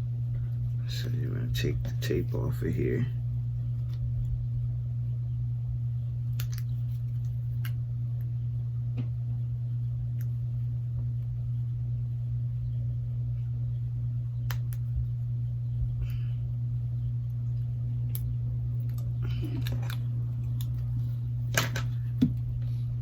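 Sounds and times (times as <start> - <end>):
steady low hum: 0.0 - 23.0
faint clicks of small parts: 6.3 - 7.8, 18.1 - 20.9.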